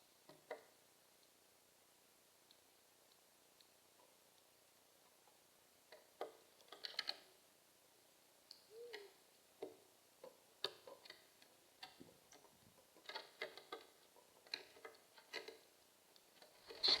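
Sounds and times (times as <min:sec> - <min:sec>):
birds pecking: 0:08.6 - 0:17.0.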